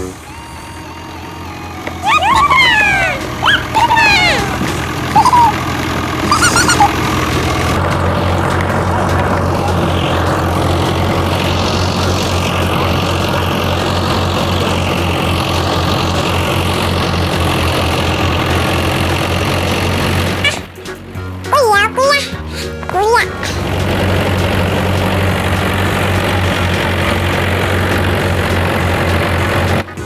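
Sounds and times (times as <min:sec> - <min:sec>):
machine engine humming: 0:00.0 - 0:20.7
high squeaky chirps: 0:02.0 - 0:05.6, 0:06.3 - 0:07.0.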